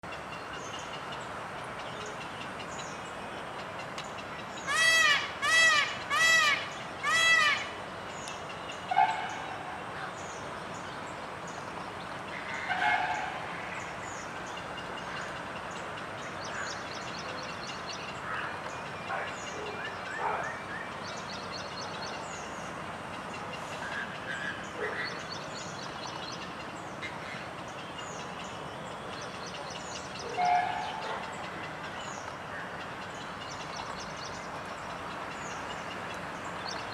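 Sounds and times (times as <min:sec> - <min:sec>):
steady background hiss: 0:00.1 - 0:36.9
peafowl calling: 0:04.7 - 0:07.7.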